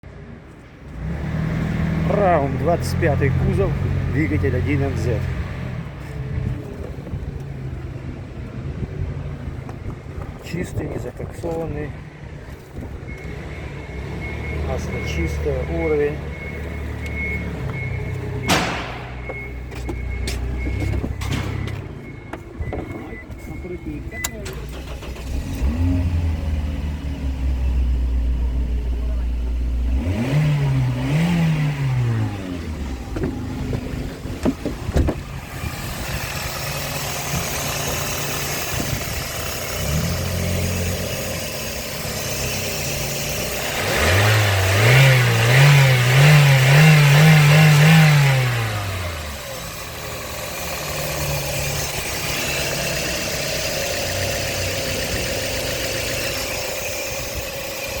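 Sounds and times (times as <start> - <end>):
car engine revving and idling: 0.4 - 58.0.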